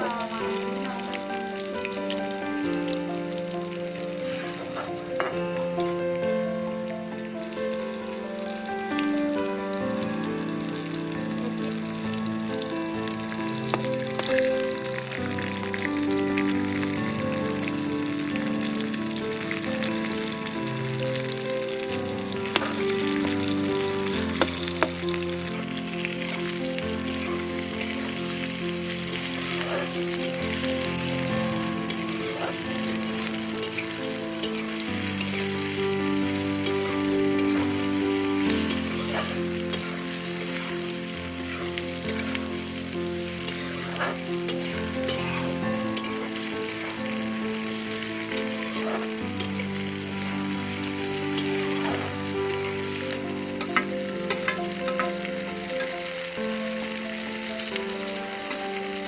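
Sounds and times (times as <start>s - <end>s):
background music: 0.0s - 59.0s
vegetables sizzling in oil: 0.0s - 59.0s
metal spatula scraping pan: 29.1s - 30.6s, 31.8s - 33.8s, 37.4s - 37.7s, 39.0s - 40.7s, 43.5s - 45.4s, 51.4s - 52.1s.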